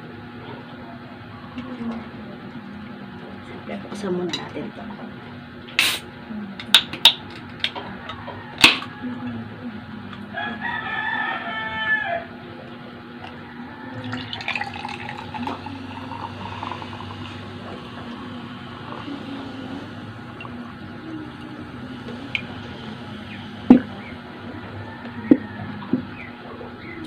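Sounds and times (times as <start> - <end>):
rooster crowing: 7.8 - 9.5, 10.3 - 12.5, 13.2 - 15.1, 21.0 - 27.0.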